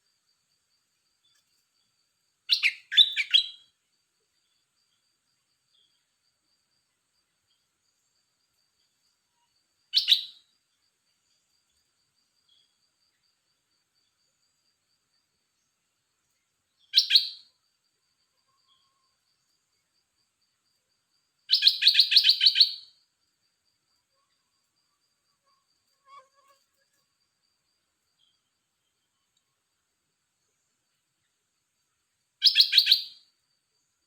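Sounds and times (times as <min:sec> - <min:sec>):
songbird calling: 0:02.5 - 0:03.7, 0:09.9 - 0:10.5, 0:16.8 - 0:17.5, 0:21.5 - 0:22.9, 0:32.4 - 0:33.2.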